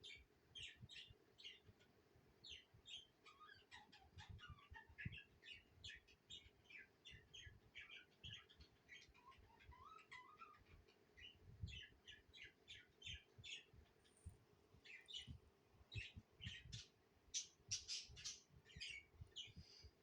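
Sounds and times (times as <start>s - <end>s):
budgerigars chirping: 2.5s - 13.7s, 15.9s - 19.6s.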